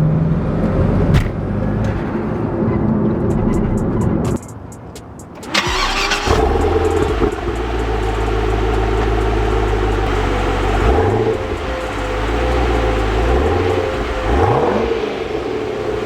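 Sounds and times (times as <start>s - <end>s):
car engine starting and idling: 5.3s - 16.0s.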